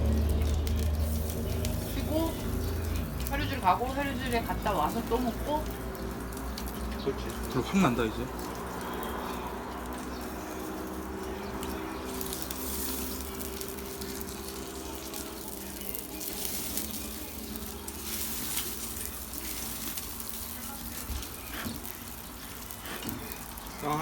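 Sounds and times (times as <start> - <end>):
meat sizzling on a grill: 0.0 - 24.0.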